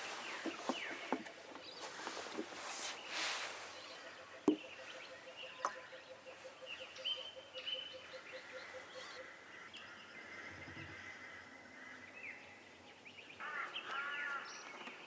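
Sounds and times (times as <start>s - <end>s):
birds whistling: 2.8s - 11.4s.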